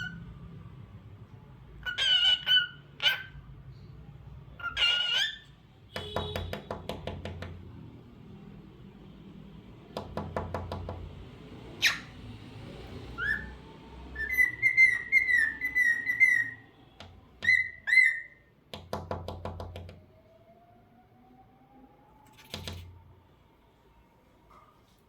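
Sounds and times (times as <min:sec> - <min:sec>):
cockatiel whistling and chirping: 0:00.0 - 0:00.2, 0:01.8 - 0:03.3, 0:04.6 - 0:05.5, 0:11.8 - 0:12.1, 0:13.2 - 0:16.7, 0:17.4 - 0:18.5.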